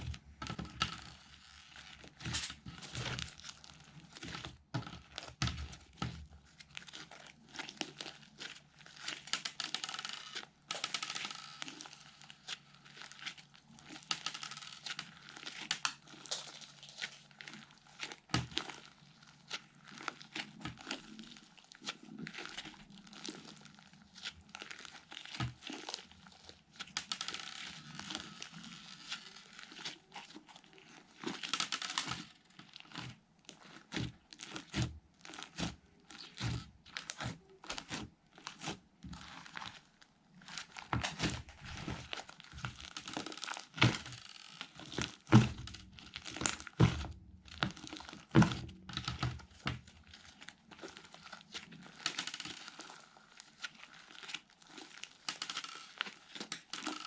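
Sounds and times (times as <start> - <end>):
slime squished by hand: 0.0 - 9.6, 10.2 - 56.9.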